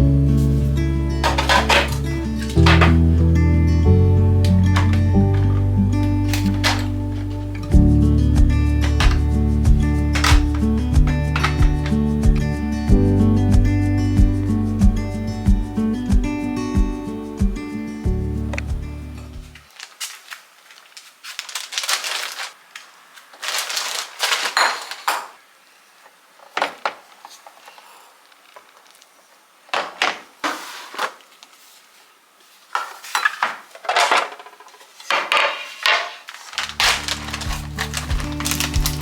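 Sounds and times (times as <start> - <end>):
dishes and utensils clinking: 1.2 - 3.1, 4.5 - 7.8, 8.7 - 12.5, 24.2 - 25.4.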